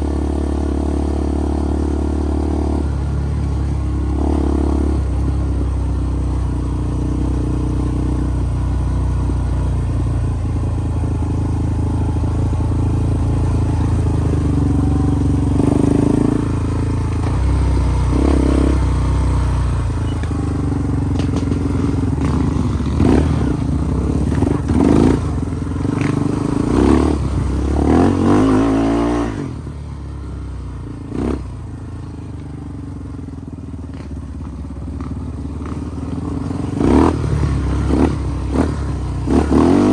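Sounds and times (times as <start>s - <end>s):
off-road vehicle engine revving: 0.0s - 32.1s, 34.9s - 39.9s
clatter: 19.9s - 27.0s, 33.6s - 39.9s.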